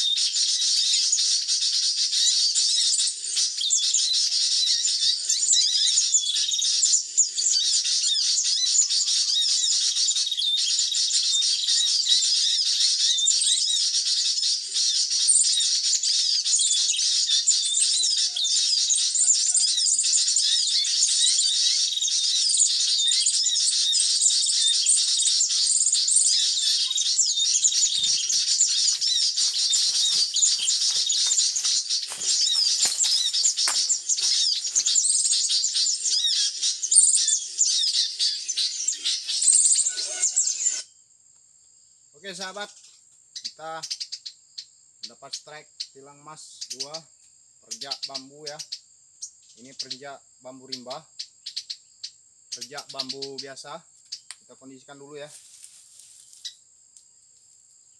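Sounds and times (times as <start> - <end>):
small birds chirping and twittering: 0.0 - 57.9
rustling: 27.7 - 35.0, 55.3 - 56.4.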